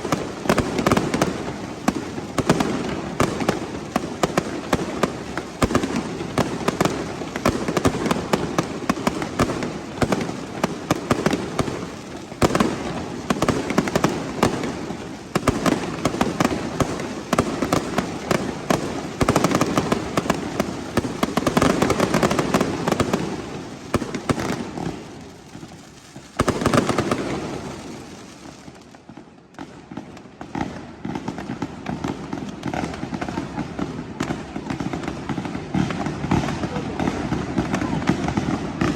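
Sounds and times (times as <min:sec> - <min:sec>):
firecracker bangs: 0:00.0 - 0:25.1.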